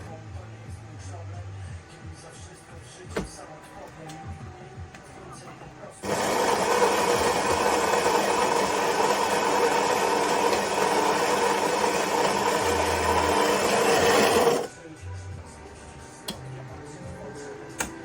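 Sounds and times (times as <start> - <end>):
coffee grinder whirring: 6.0 - 14.7.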